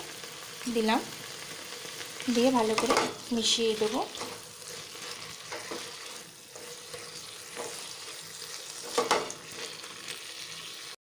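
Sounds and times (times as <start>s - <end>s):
vegetables sizzling in oil: 0.0s - 11.0s
spatula scraping pan: 3.8s - 10.2s.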